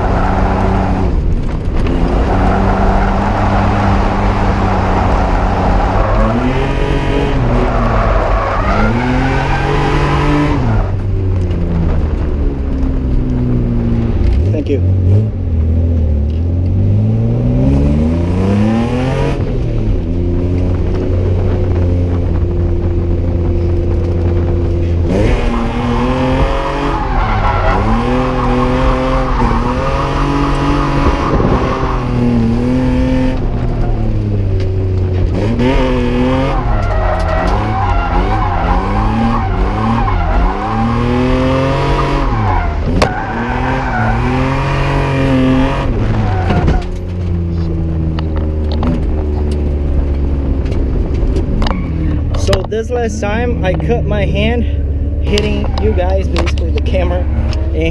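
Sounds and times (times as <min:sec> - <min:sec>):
tire squeal: 0:00.0 - 0:01.2, 0:02.1 - 0:11.0, 0:24.8 - 0:32.5, 0:33.6 - 0:34.4, 0:35.9 - 0:47.7, 0:51.6 - 0:52.4, 0:55.3 - 0:57.9
car engine revving: 0:00.0 - 0:57.9.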